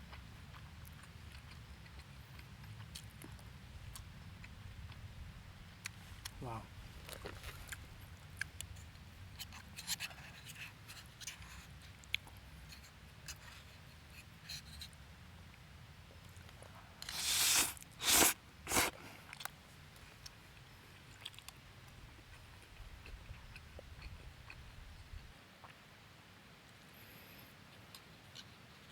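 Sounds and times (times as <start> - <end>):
short rustling bursts: 17.0 - 19.0.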